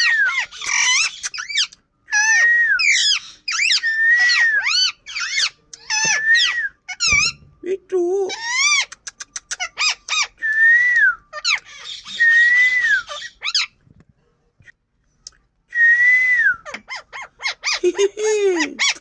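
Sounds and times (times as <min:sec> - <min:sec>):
parakeet squawking and screeching: 0:00.0 - 0:07.6, 0:08.2 - 0:10.4, 0:11.2 - 0:13.8, 0:16.6 - 0:19.0.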